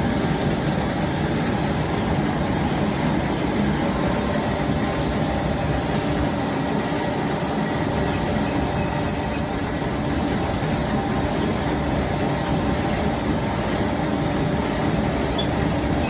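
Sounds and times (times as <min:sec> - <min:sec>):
bag cutting machine running: 0:04.8 - 0:16.0.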